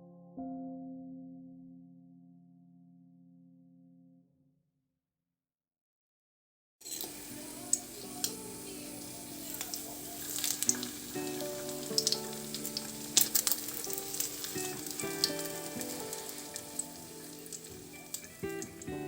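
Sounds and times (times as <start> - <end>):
food sizzling in a pan: 6.8 - 19.0
soft background music: 6.9 - 19.0.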